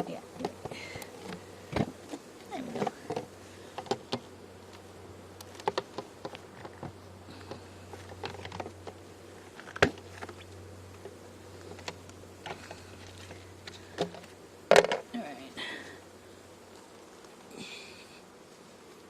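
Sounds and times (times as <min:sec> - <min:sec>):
honeybees buzzing: 0:00.0 - 0:19.0
hive equipment clicking and knocking: 0:05.4 - 0:09.0, 0:14.0 - 0:15.1.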